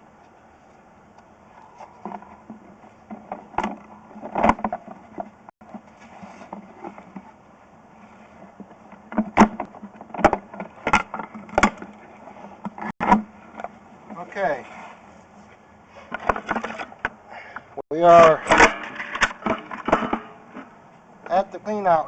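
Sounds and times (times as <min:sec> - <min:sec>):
sharp knocks and clunks: 0:02.0 - 0:05.8, 0:08.9 - 0:12.0, 0:12.6 - 0:14.2.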